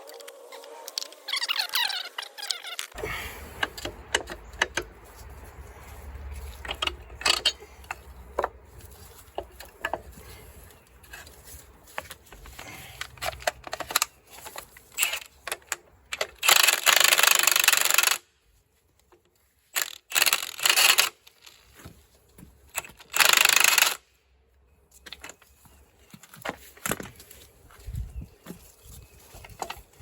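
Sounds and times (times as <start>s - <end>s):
metal parts clinking: 6.4s - 8.2s.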